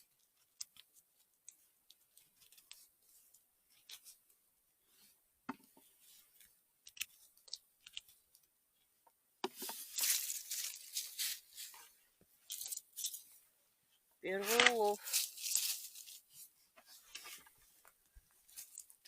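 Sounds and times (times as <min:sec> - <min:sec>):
forest litter rustling and crackling: 0:09.8 - 0:11.8, 0:14.4 - 0:16.2.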